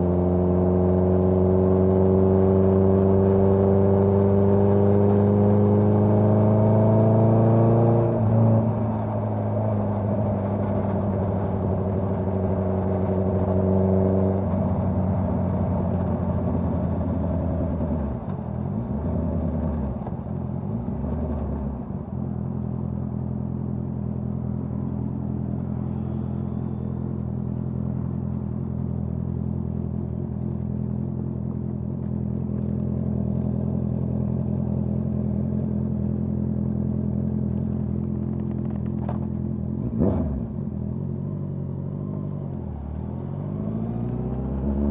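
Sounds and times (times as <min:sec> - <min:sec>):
motorcycle engine revving: 0:23.2 - 0:44.9.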